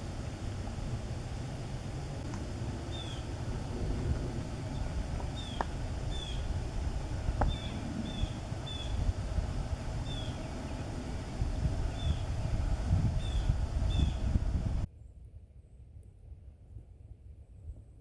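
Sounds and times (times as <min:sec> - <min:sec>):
small bird calling: 0:00.0 - 0:14.5
wind rumble on microphone: 0:00.0 - 0:14.9
faint clicks: 0:00.8 - 0:06.5.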